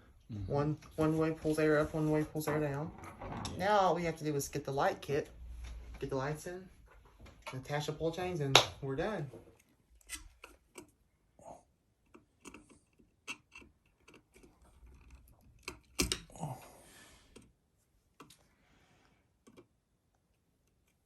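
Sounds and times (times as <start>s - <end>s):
clicks and taps of small parts: 12.0s - 16.3s.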